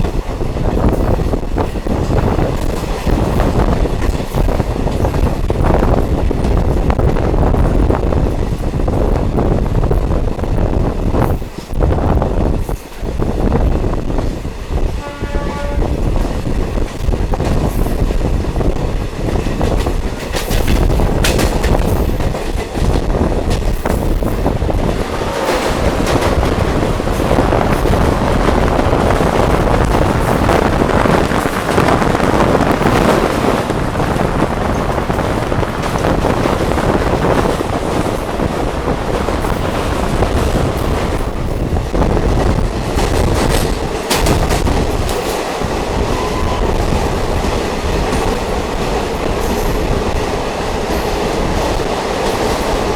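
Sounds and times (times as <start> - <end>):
train running along track: 0.0 - 52.9
train horn note: 15.0 - 16.2, 46.1 - 46.9.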